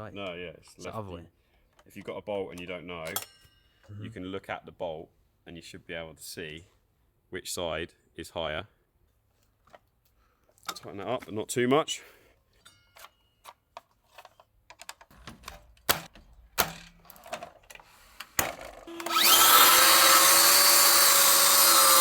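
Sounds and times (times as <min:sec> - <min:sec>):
handling clicks and knocks: 0:12.9 - 0:18.9
chop saw motor whine: 0:18.6 - 0:22.0.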